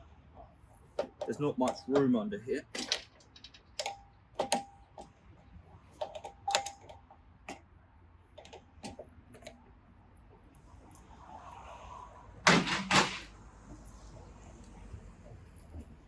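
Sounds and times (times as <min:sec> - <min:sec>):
spanner clicking on pipe fittings: 0:01.0 - 0:05.1, 0:06.0 - 0:07.6
loud metal clanks: 0:12.5 - 0:13.3.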